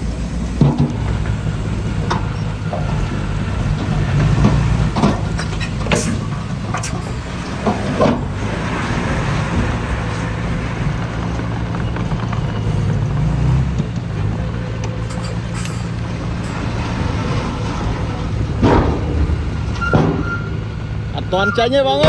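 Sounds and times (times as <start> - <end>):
diesel engine running: 0.0 - 22.0
metal and stone clanks: 2.0 - 8.3, 17.7 - 20.8.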